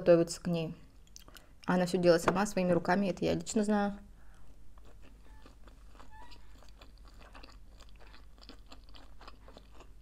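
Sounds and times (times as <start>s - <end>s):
chewing food close up: 4.3s - 10.0s.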